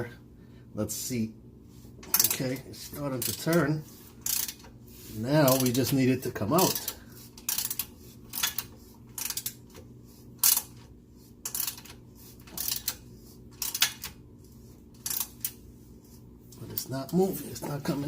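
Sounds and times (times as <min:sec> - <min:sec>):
ratchet wrench clicking: 0:04.2 - 0:04.7, 0:05.5 - 0:05.8, 0:06.6 - 0:09.6, 0:10.4 - 0:10.7, 0:11.4 - 0:13.0, 0:13.6 - 0:14.1, 0:15.0 - 0:15.6.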